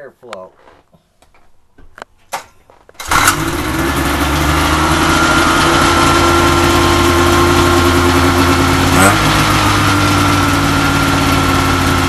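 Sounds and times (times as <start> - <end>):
snowmobile engine running: 3.0 - 12.0.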